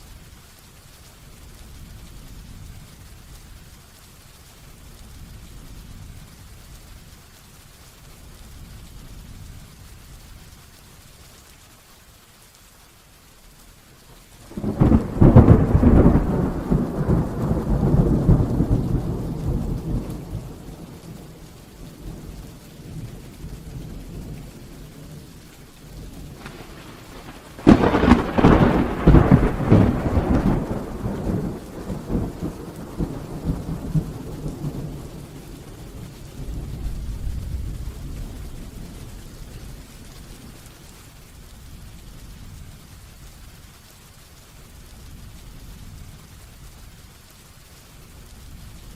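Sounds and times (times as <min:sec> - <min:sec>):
rain falling: 0:00.0 - 0:48.9
thunder rolling: 0:14.4 - 0:25.3, 0:26.0 - 0:39.0.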